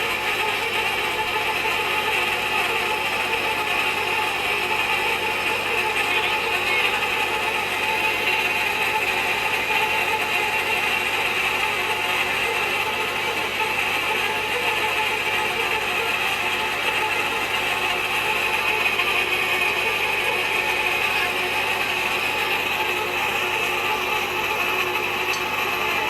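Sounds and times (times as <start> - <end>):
machine cutting steel pipe: 0.0 - 26.0.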